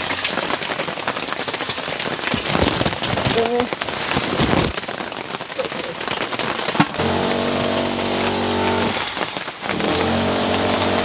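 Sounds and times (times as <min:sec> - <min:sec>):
rain pattering: 0:00.0 - 0:11.0
motor engine running: 0:07.0 - 0:09.1.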